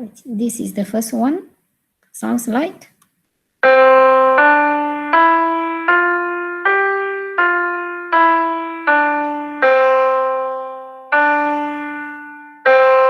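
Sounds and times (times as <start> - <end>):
keyboard melody climbing a scale: 3.6 - 13.0.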